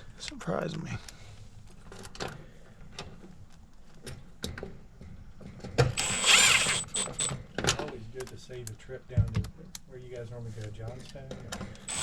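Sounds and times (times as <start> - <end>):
hand tools and metal parts clicking: 5.4 - 8.8, 10.9 - 12.0.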